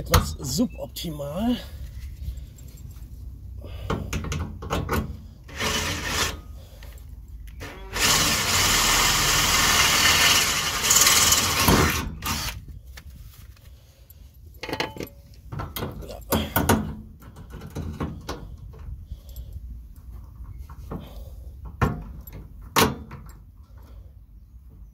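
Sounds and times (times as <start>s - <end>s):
drill boring through sheet metal: 5.5s - 6.4s, 7.6s - 12.6s.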